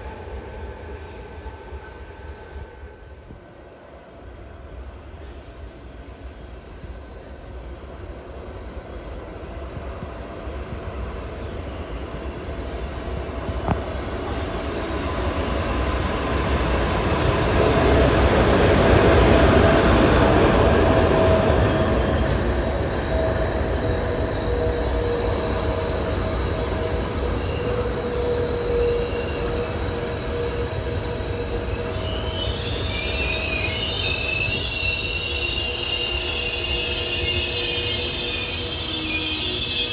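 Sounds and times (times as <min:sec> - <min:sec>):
train running along the line: 0:00.0 - 0:39.9
wheels squealing on rails: 0:14.0 - 0:39.9.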